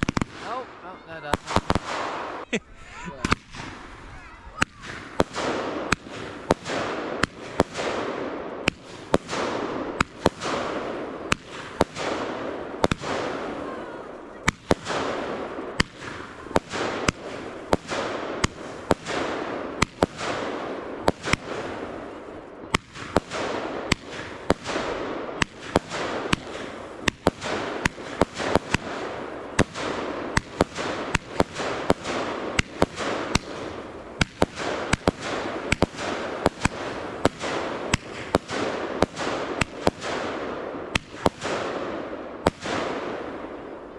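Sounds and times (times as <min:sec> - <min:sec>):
fireworks banging: 0:00.0 - 0:43.9.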